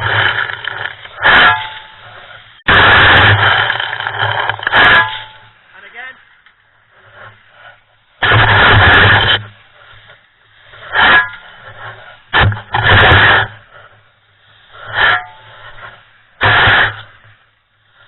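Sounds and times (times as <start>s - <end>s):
shovel scraping concrete mix: 0.0s - 5.5s, 7.0s - 9.9s, 10.7s - 13.9s, 14.7s - 17.2s.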